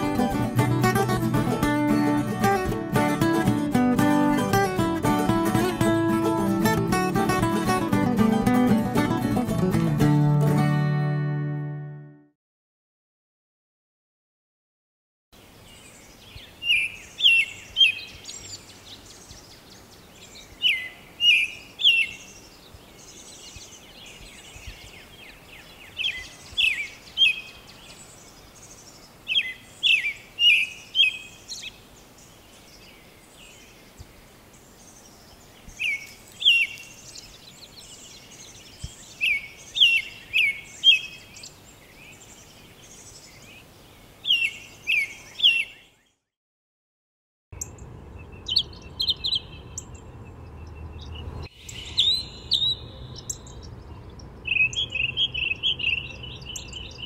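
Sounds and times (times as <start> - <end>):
robin singing: 15.6 - 46.2, 47.6 - 57.0
faint high chirping: 47.6 - 57.0.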